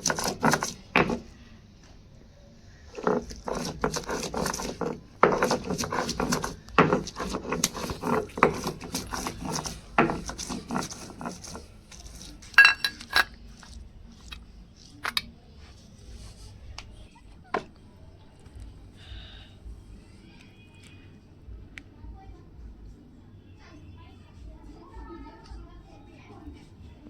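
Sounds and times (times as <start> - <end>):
utensil scraping a dish: 0.0 - 1.4, 2.8 - 14.4.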